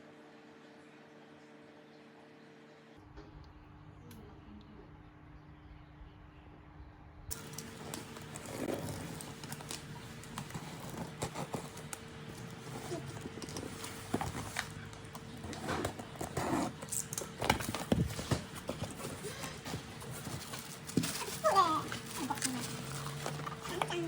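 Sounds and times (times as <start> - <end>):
packaging rustling and clicking: 7.3 - 24.0.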